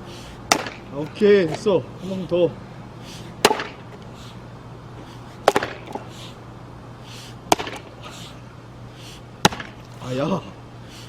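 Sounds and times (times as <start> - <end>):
axe striking log: 0.5 - 0.8, 3.4 - 3.8, 5.4 - 6.0, 7.5 - 7.9, 9.4 - 9.8.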